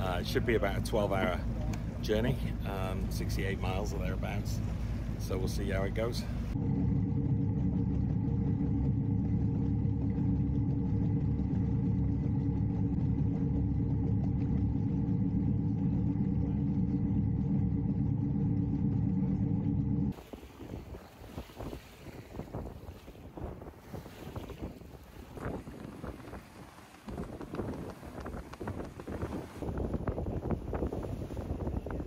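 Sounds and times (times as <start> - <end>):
boat engine humming: 0.0 - 32.0
water: 0.0 - 32.0
wind noise: 20.1 - 32.0.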